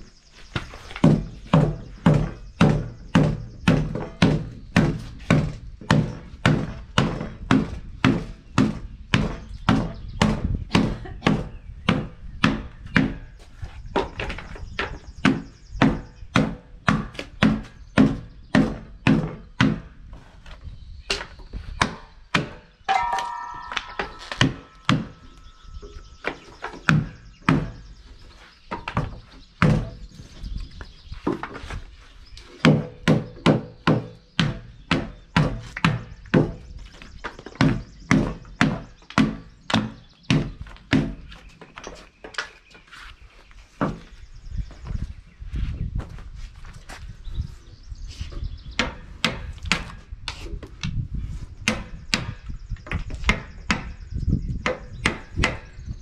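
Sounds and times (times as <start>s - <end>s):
hammer blows on timber: 21.8s - 27.9s.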